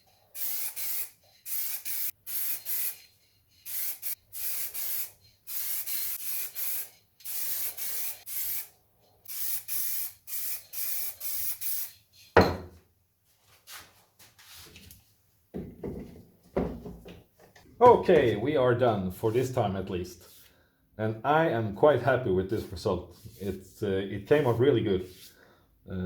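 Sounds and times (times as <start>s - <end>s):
spray can hissing in bursts: 0.0s - 12.3s.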